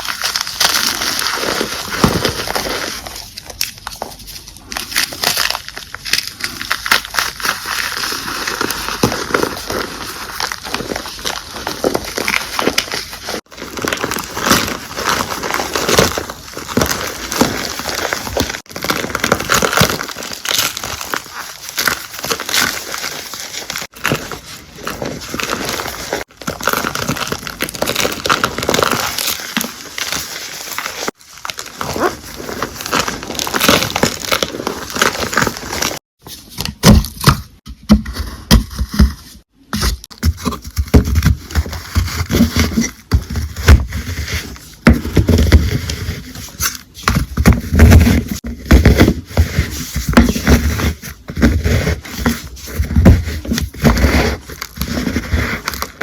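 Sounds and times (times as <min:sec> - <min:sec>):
chalk being crushed: 0:00.0 - 0:36.9.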